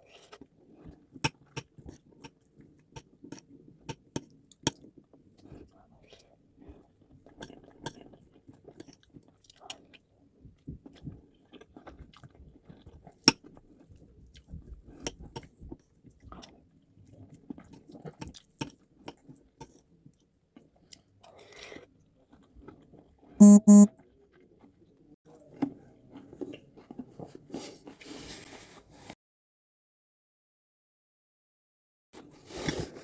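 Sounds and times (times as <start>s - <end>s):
person chewing food: 6.7s - 13.6s, 20.6s - 23.8s.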